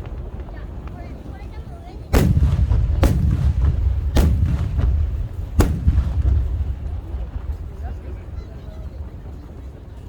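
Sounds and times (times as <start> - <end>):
firework shells bursting: 2.1 - 8.2.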